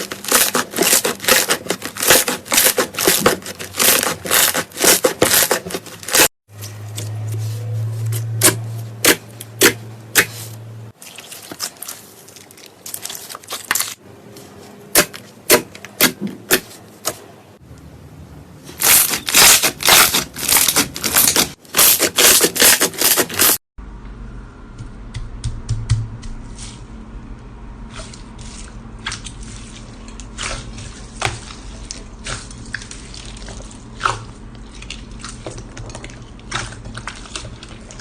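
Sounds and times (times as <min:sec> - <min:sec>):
low steady hum: 0:23.8 - 0:38.0.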